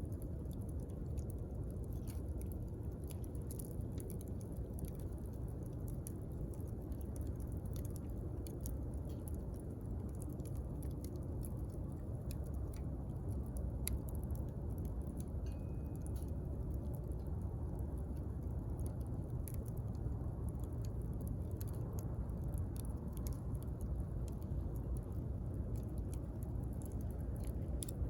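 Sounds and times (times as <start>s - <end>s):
low rumble of flames: 0.0s - 28.0s
wood fire crackling: 0.0s - 28.0s.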